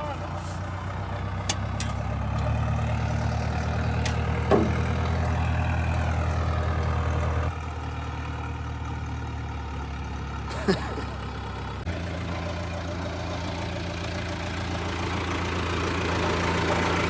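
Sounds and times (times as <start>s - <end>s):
vehicle engine idling: 0.0s - 17.0s
clunk: 1.4s - 5.4s.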